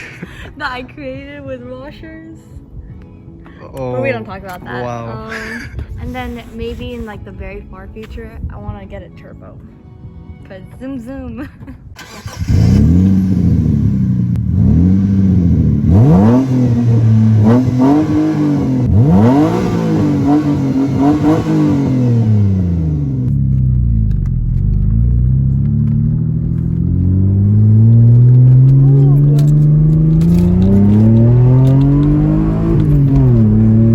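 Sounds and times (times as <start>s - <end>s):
car engine revving: 12.0s - 33.9s.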